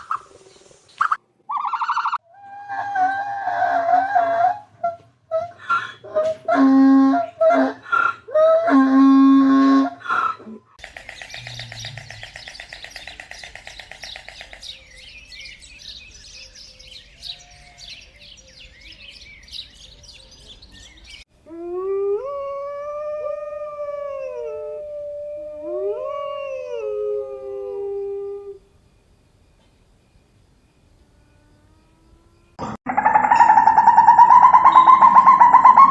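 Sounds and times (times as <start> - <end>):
canine howling: 2.3 - 10.0, 21.5 - 28.6, 33.0 - 35.9
dense high twittering: 10.8 - 21.2, 23.0 - 35.9.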